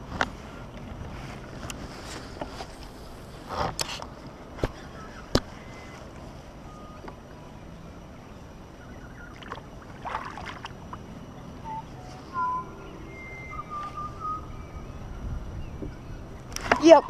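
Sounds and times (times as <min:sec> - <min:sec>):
steady background hiss: 0:00.0 - 0:17.0
bird chirps: 0:08.8 - 0:09.5, 0:11.3 - 0:17.0.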